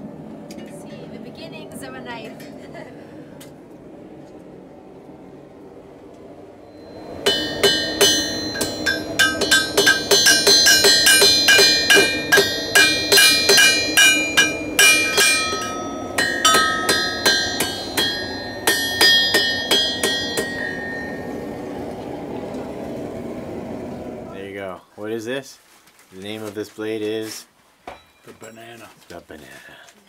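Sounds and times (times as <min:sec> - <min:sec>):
hammer striking steel on anvil: 0:06.8 - 0:21.7.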